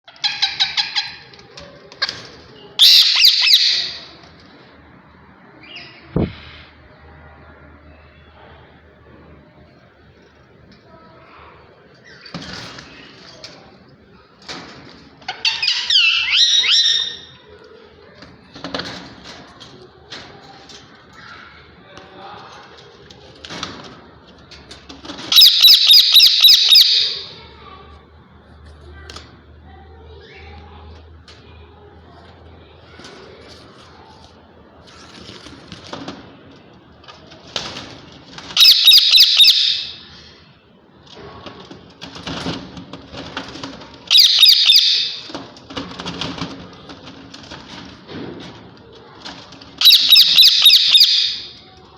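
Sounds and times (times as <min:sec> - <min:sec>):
parakeet screeching: 0:02.8 - 0:04.0, 0:15.4 - 0:17.2, 0:25.3 - 0:27.3, 0:38.6 - 0:40.0, 0:44.1 - 0:45.3, 0:49.8 - 0:51.6.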